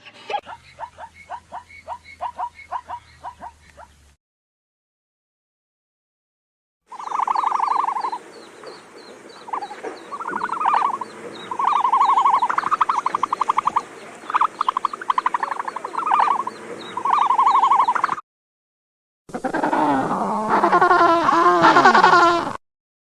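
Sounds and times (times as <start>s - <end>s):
frogs croaking: 0.3s - 3.8s, 6.9s - 18.2s.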